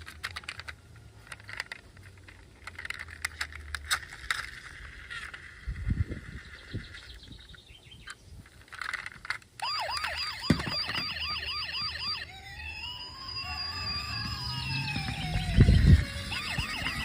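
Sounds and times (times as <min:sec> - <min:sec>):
plastic toy clicking and rattling: 0:00.0 - 0:07.2, 0:08.0 - 0:11.0
electronic toy siren: 0:09.6 - 0:17.0.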